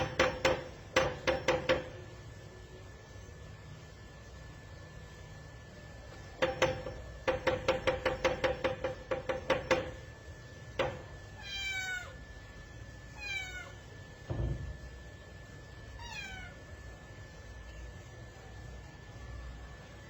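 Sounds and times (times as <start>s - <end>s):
cat meowing: 11.4s - 12.2s, 13.1s - 13.8s, 16.0s - 16.7s.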